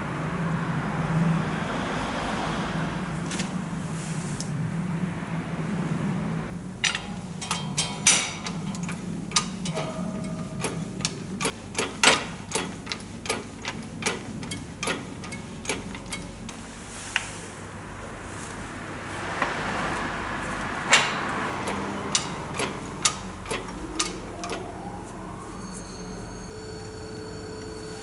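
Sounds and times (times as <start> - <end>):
steady low hum: 3.6 - 28.0
sharp clicks and knocks: 6.8 - 16.6, 20.9 - 24.7.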